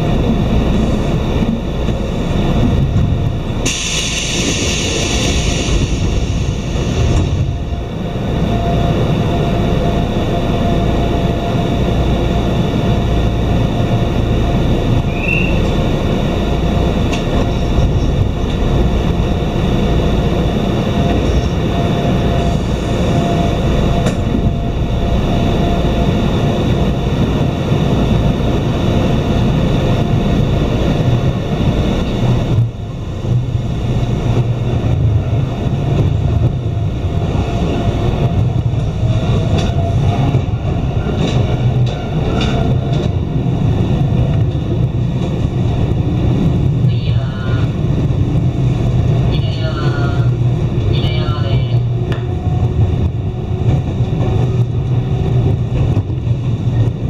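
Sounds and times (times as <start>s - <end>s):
electric train rumble and hum: 0.0s - 57.0s
passing train whine: 0.0s - 57.0s.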